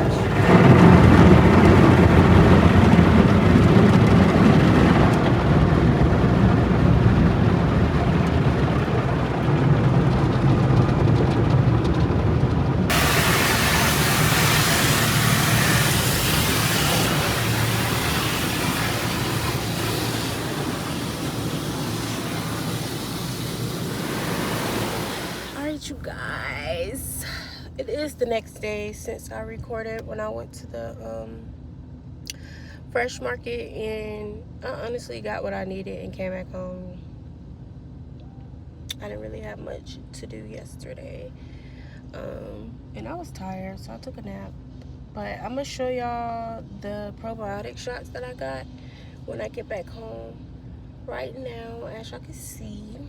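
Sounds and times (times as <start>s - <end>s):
car wash water and machinery rumble: 0.0s - 53.0s
loud even hiss: 12.9s - 25.8s.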